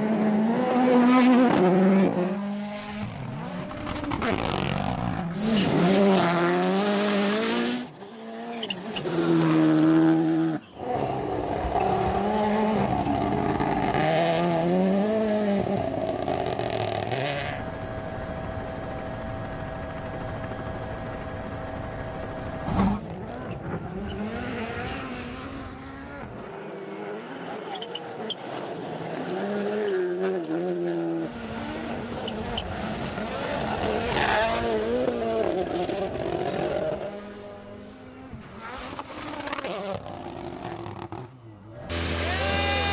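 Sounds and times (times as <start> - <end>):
rally car engine revving: 0.0 - 17.6, 28.9 - 42.9.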